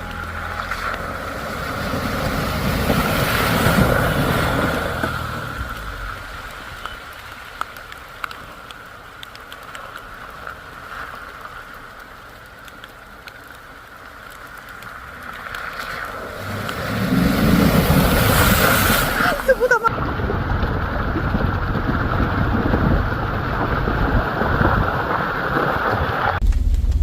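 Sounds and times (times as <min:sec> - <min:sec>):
vehicle running: 0:00.0 - 0:13.6, 0:14.3 - 0:27.0
rain falling: 0:00.0 - 0:27.0
low rumble: 0:16.1 - 0:27.0.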